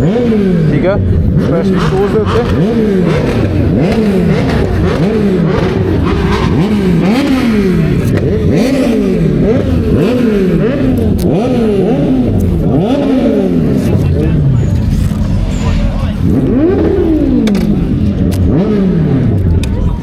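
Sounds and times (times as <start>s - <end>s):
engine revving: 0.0s - 20.0s.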